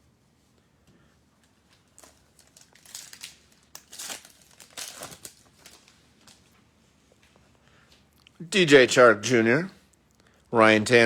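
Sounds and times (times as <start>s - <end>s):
wrapper crinkling and tearing: 1.9s - 6.5s.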